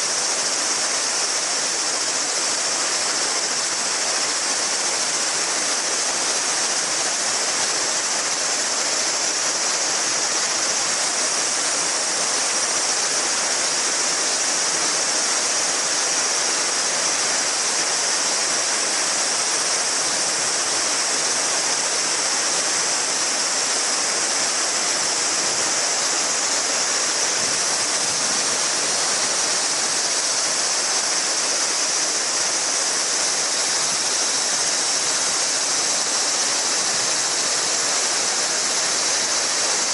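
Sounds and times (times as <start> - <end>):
cicadas shrilling: 0.0 - 39.9
river babbling over stones: 0.0 - 39.9.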